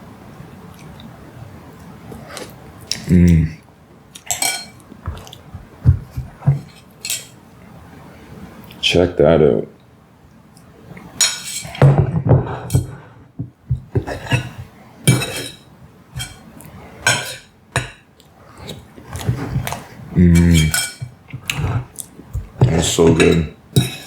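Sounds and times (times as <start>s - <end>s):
person eating: 2.1s - 5.6s, 13.9s - 15.6s, 18.2s - 24.0s
person humming mm: 3.0s - 3.5s
spoon scraping on plate: 4.2s - 5.3s, 6.4s - 7.4s, 11.2s - 11.8s, 14.0s - 18.0s, 18.6s - 24.0s.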